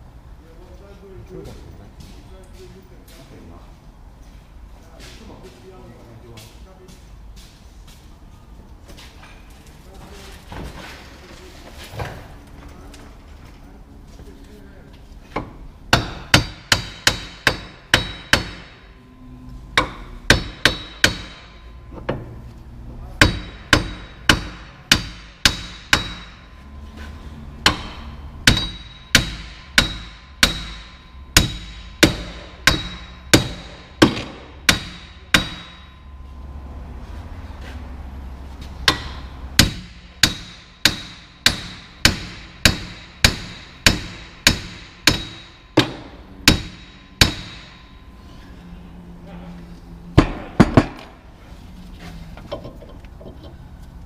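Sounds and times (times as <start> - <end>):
hammer striking metal: 15.9 - 18.9, 19.8 - 22.2, 23.2 - 26.6, 27.6 - 36.3, 38.8 - 48.1, 50.2 - 51.2.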